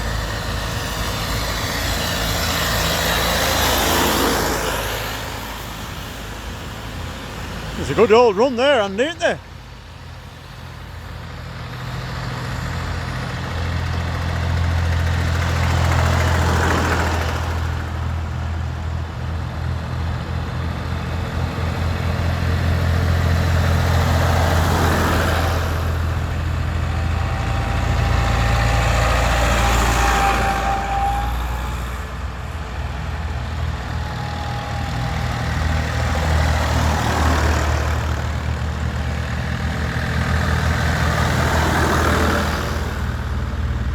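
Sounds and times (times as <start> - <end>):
tractor engines passing: 0.0 - 43.9.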